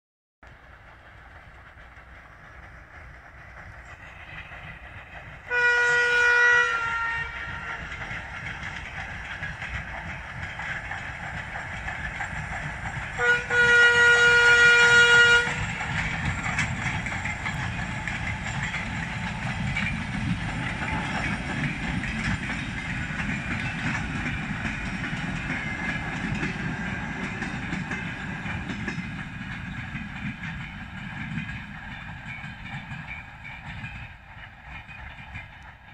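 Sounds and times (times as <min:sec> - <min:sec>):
train rolling past: 0:00.4 - 0:35.9
diesel locomotive horn: 0:05.5 - 0:08.2, 0:13.2 - 0:15.8, 0:20.6 - 0:21.4.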